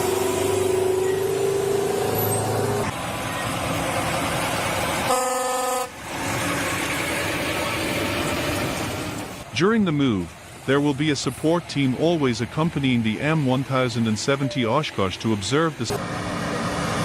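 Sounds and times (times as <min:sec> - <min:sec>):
engine whine: 0:00.0 - 0:09.5, 0:10.3 - 0:17.0
truck diesel engine running: 0:00.0 - 0:17.0
air horn blast: 0:05.1 - 0:06.0.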